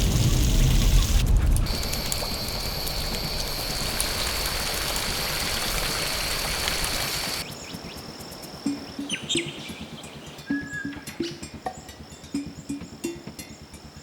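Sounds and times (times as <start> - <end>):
heavy rain: 0.0 - 7.4
high-pitched whine: 0.0 - 7.6
outdoor ambience: 0.0 - 14.0.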